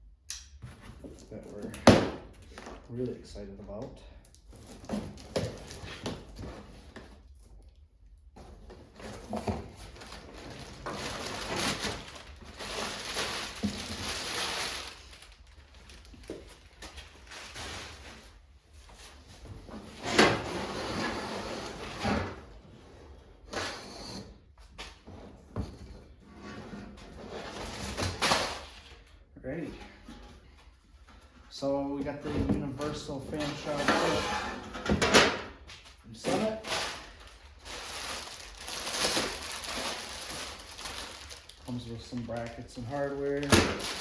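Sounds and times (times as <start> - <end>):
cardboard and plastic rustling: 4.3 - 22.6, 34.8 - 44.0.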